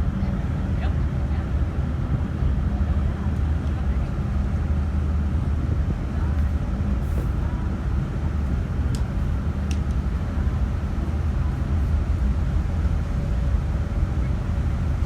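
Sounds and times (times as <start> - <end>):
ferry engine rumble: 0.0 - 15.0.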